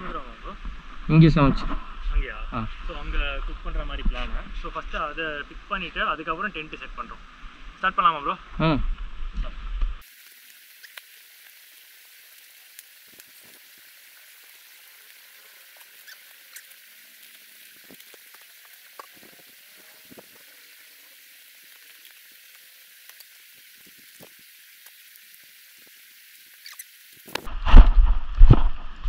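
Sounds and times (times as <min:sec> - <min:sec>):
faint high hiss: 0:00.0 - 0:27.8
faint clicks and crackles: 0:10.0 - 0:29.0.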